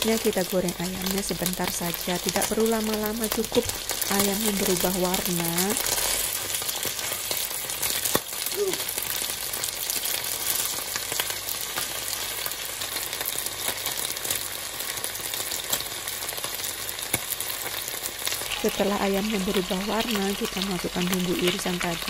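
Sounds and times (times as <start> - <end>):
chicken wings sizzling in oil: 0.0 - 22.0.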